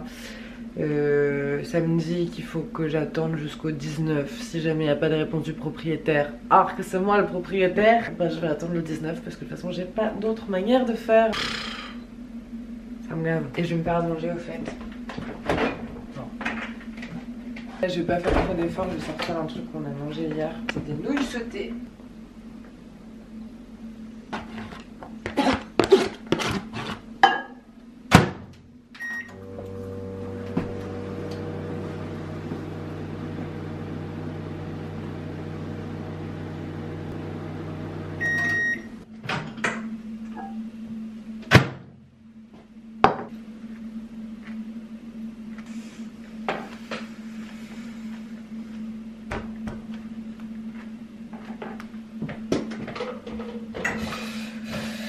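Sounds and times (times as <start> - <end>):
microwave oven humming: 0.0 - 55.0
microwave beeps: 29.0 - 29.5, 38.1 - 39.0, 39.6 - 41.4.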